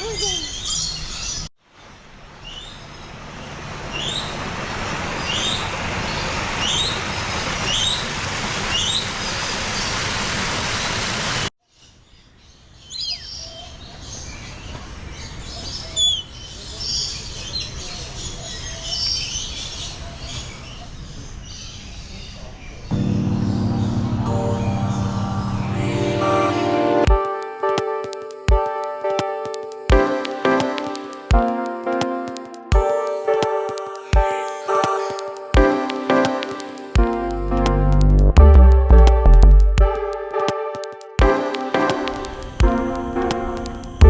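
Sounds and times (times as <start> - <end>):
steady rushing noise: 39.7 - 44.0.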